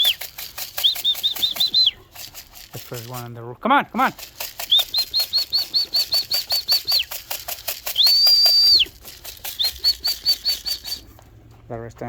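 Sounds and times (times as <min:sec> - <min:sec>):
high whistle notes: 0:00.0 - 0:02.0, 0:04.6 - 0:07.2, 0:07.8 - 0:11.1
fast even rattling: 0:00.0 - 0:03.4, 0:04.0 - 0:11.1.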